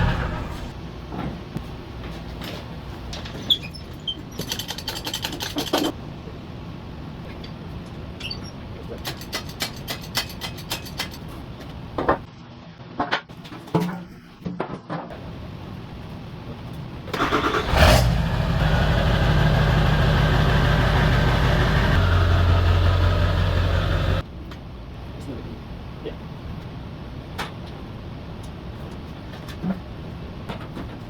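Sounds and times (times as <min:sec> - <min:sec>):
truck engine starting and idling: 0:00.0 - 0:00.8, 0:15.1 - 0:16.1, 0:16.9 - 0:24.2.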